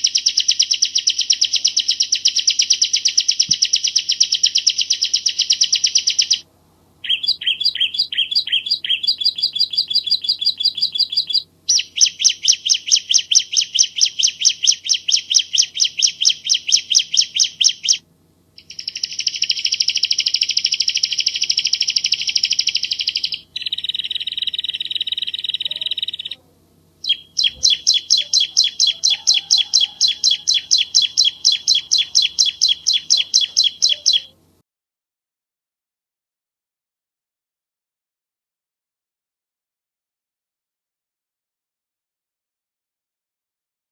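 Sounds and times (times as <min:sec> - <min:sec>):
bird singing high clear notes: 0:00.0 - 0:06.4, 0:07.0 - 0:18.0, 0:18.6 - 0:26.4, 0:27.0 - 0:34.4.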